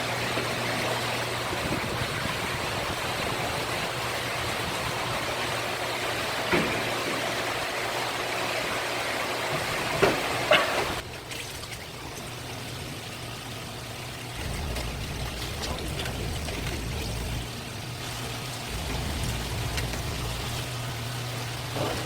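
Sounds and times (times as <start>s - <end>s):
rushing water: 0.0s - 22.0s
low hum: 14.4s - 21.9s.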